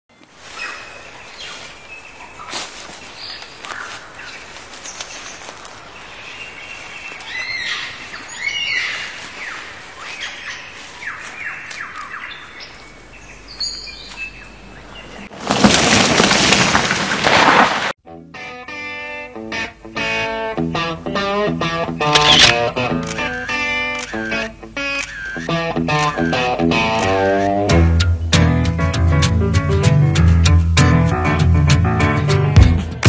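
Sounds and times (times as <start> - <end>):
wild birds singing: 0.1 - 15.4, 21.9 - 27.6.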